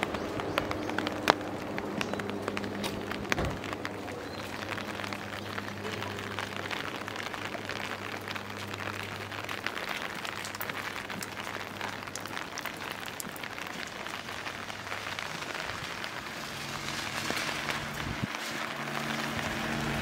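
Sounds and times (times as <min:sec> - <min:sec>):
rain falling on street: 0:00.0 - 0:20.0.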